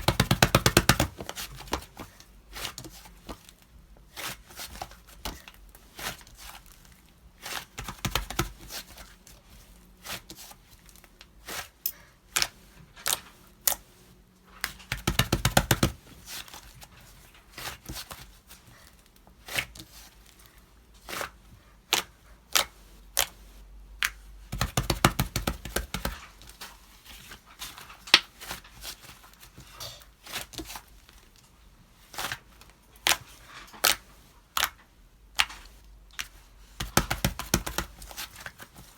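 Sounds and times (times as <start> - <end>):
rapid slime crackling: 36.8 - 38.7.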